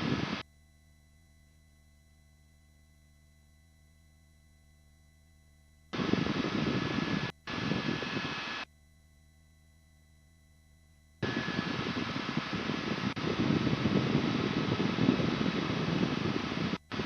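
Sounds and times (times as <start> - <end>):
helicopter cabin noise through headset: 0.0 - 0.4, 6.0 - 8.6, 11.2 - 17.0
faint hum: 0.0 - 17.0.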